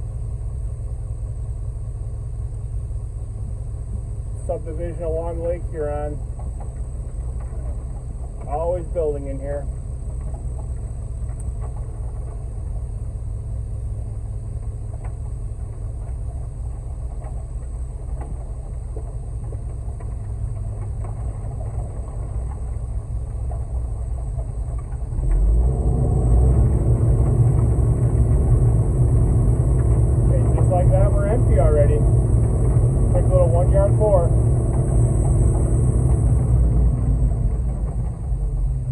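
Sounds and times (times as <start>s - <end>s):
diesel engine low rumble: 0.0s - 38.9s.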